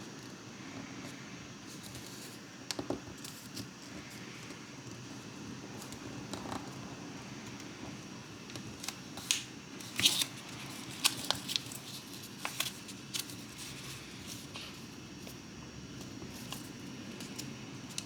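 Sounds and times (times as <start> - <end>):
faint background hum: 0.0 - 18.0
paper being folded and creased: 8.6 - 14.9.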